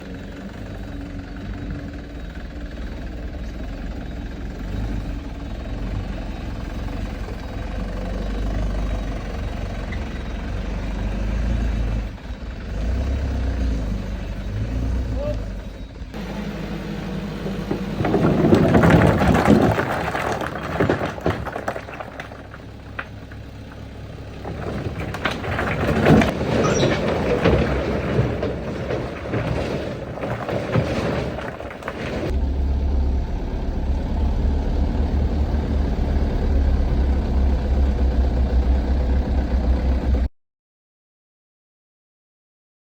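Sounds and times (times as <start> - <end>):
dump truck engine running: 0.0 - 40.3
loud rattling and rumbling: 16.2 - 40.3.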